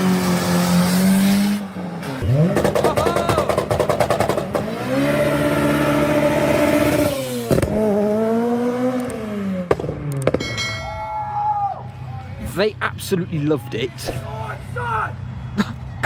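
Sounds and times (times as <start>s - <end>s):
car engine revving hard: 0.0s - 10.3s
sharp cracks: 2.4s - 4.8s, 9.0s - 10.5s.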